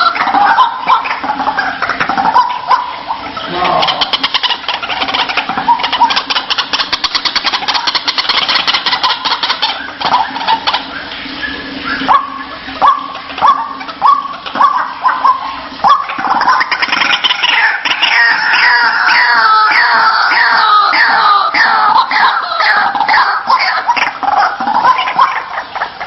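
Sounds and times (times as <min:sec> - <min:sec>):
waterhen calling: 0:00.0 - 0:26.0.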